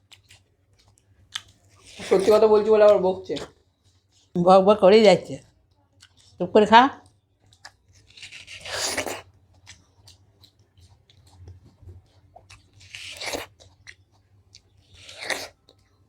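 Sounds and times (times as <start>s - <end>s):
wet chewing: 0.0s - 4.4s, 5.6s - 16.0s
juicy watermelon bites: 7.0s - 16.0s.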